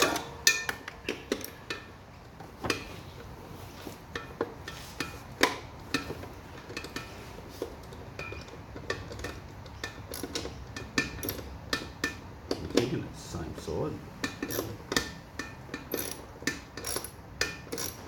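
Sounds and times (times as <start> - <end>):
hand tools clinking on metal: 0.0 - 1.9.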